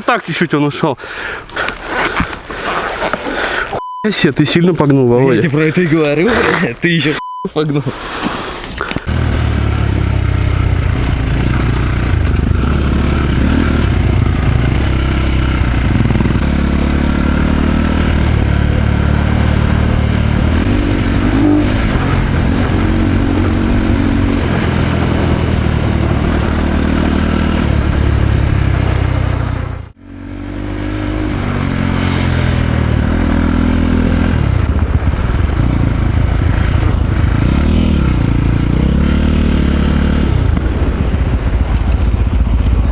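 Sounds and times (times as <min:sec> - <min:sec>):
dirt bike engine revving: 0:09.0 - 0:42.9.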